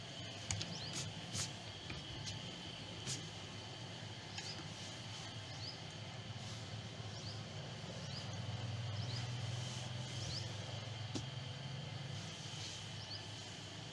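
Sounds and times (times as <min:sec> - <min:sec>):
low steady hum: 0:00.0 - 0:13.9
high rising bird chirps: 0:06.9 - 0:10.9.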